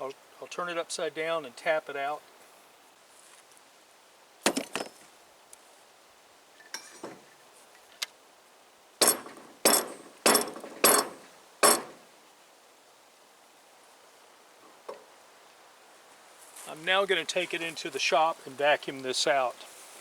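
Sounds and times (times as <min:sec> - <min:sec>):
metal fitting knocking on hard surface: 0:09.0 - 0:12.0.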